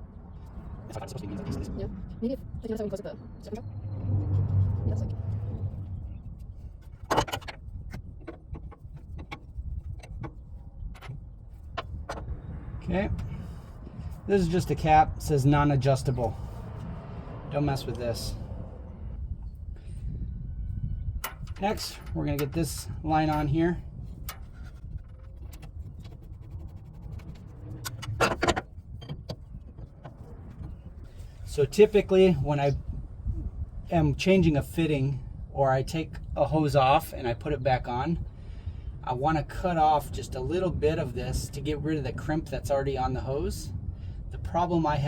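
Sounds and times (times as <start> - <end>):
low steady rumble: 0.0 - 45.0
metal clatter: 6.8 - 12.3, 21.2 - 30.9
metal fitting clicks and rattles: 7.0 - 12.3.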